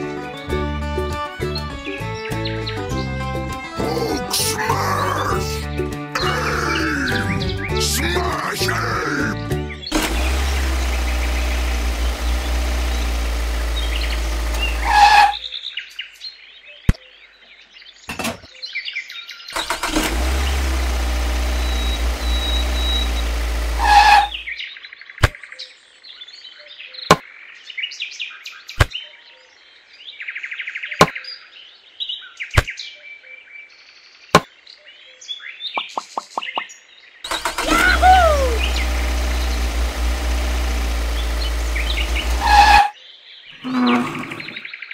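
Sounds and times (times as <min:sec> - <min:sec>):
toy tractor engine sound: 0:03.7 - 0:05.6, 0:06.2 - 0:15.4, 0:19.6 - 0:24.5, 0:37.3 - 0:42.9.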